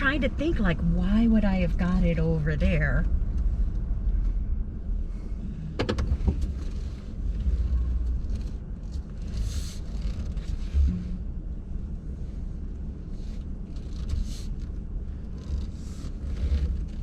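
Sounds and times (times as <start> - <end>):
truck engine rumbling: 0.0 - 17.0.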